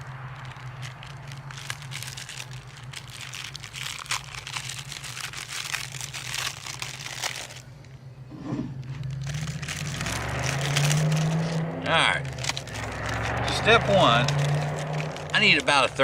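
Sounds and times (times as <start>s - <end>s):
packaging crinkling: 0.0s - 8.0s, 8.8s - 16.0s.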